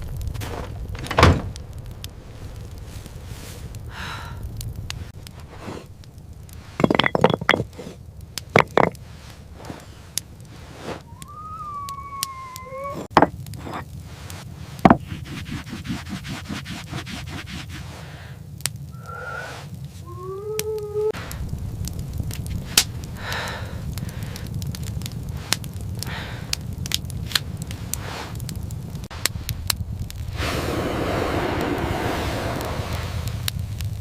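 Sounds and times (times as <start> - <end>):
wavering high call: 11.0 - 13.1.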